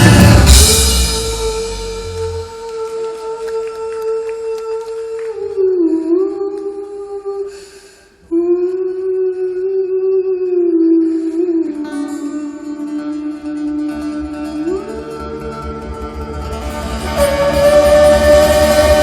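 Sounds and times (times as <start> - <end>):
person singing long notes: 0.0 - 7.5, 8.3 - 19.0
intake of breath: 7.5 - 8.2.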